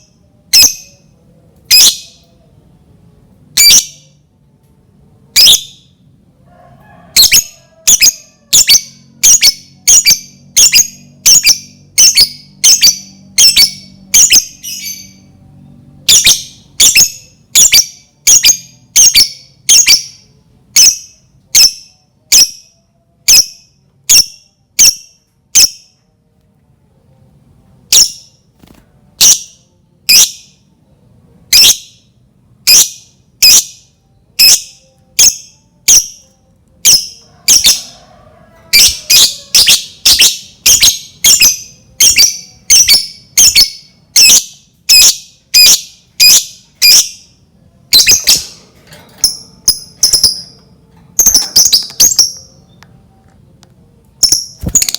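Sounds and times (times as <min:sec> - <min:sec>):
lovebird shrill chirping: 0:01.7 - 0:02.3, 0:07.2 - 0:15.2, 0:38.7 - 0:47.2, 0:51.2 - 0:52.8.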